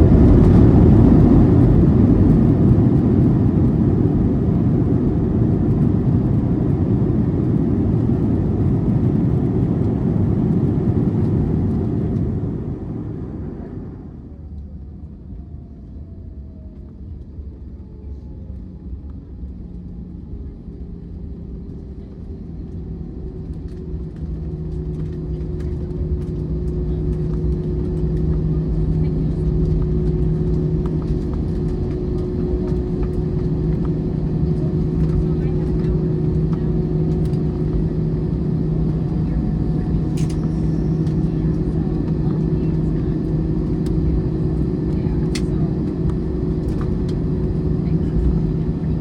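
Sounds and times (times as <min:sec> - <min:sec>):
jet engines roaring: 0:00.0 - 0:13.4
engine hum: 0:00.0 - 0:49.0.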